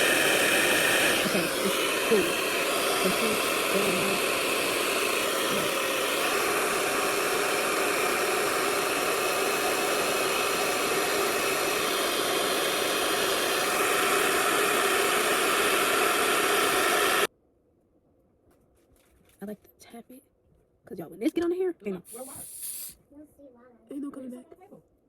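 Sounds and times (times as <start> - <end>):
hair dryer running: 0.0 - 17.3.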